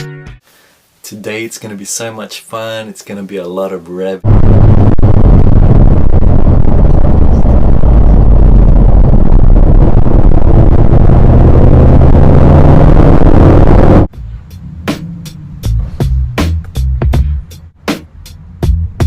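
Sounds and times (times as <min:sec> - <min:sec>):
car engine accelerating: 0:04.2 - 0:16.8.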